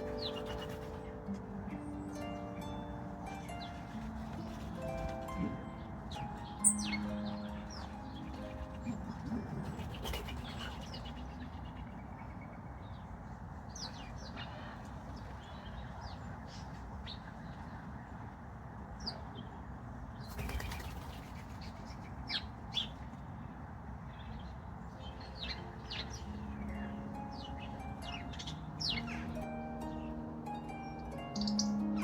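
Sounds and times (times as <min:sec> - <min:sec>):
wings fluttering: 0:00.0 - 0:01.2, 0:03.7 - 0:05.6, 0:08.9 - 0:11.2, 0:20.3 - 0:22.1
birds chirping: 0:00.0 - 0:18.2, 0:20.2 - 0:32.0
low background noise: 0:00.0 - 0:32.0.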